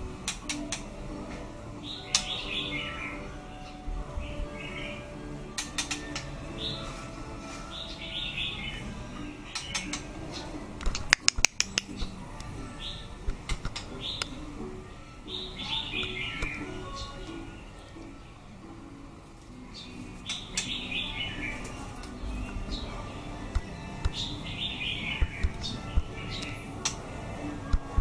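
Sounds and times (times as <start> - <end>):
bird chirping: 1.7 - 18.6, 19.6 - 28.0
sharp clicks: 10.8 - 12.5
small bird chirping: 19.7 - 27.1.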